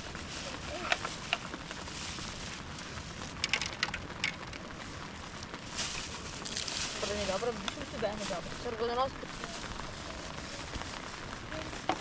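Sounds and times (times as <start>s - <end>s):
wood cracking and snapping: 6.4s - 7.2s.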